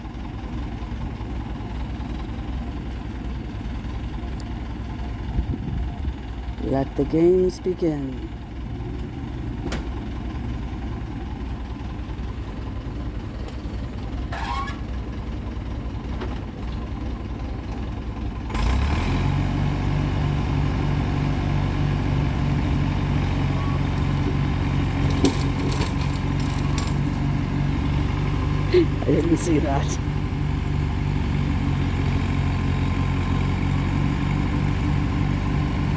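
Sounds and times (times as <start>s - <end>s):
tractor and truck engines droning: 0.0s - 35.9s.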